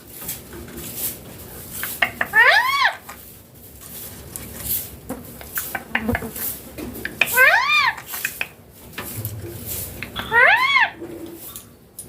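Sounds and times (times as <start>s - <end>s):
parrot call: 2.2s - 3.0s, 7.2s - 8.1s, 10.0s - 11.0s.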